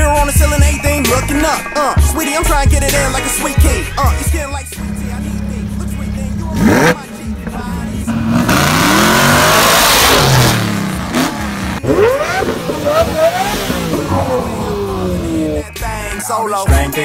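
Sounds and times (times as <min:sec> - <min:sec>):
car engines revving: 0:00.0 - 0:16.2
loud exhaust roar: 0:04.7 - 0:16.0
car accelerating away: 0:04.8 - 0:16.1.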